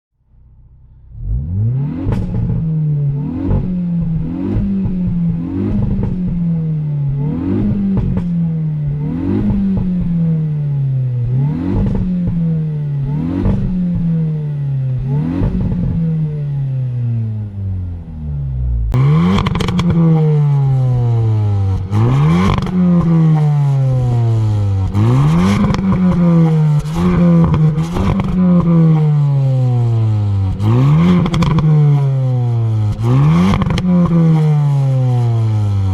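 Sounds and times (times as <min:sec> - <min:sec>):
car engine revving: 0:00.3 - 0:35.9
exhaust pops and crackles: 0:02.0 - 0:02.7, 0:03.4 - 0:10.2, 0:11.7 - 0:12.5, 0:13.4 - 0:14.2, 0:18.9 - 0:20.1, 0:21.7 - 0:23.2, 0:24.8 - 0:29.0, 0:30.4 - 0:32.0, 0:32.9 - 0:34.3.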